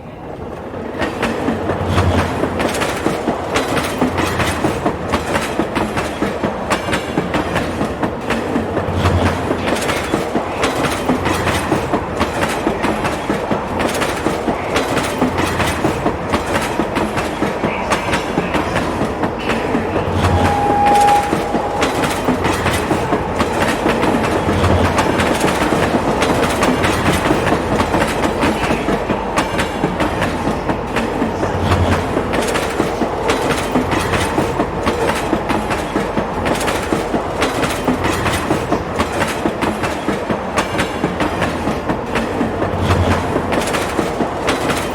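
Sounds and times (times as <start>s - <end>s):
train rumbling along track: 0.0s - 44.9s
wheels clicking over rail joints: 0.6s - 44.9s
short steady high tone: 20.2s - 23.5s.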